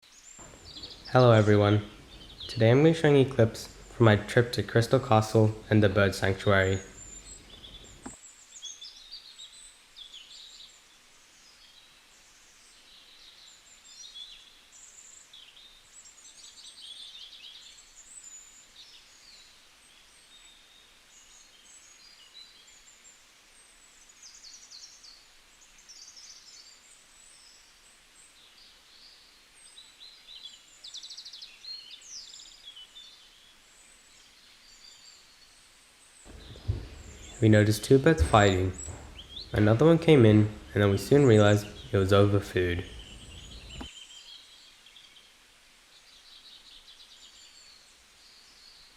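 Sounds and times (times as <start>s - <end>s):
flock of birds chirping: 0.1s - 8.2s, 36.3s - 44.6s.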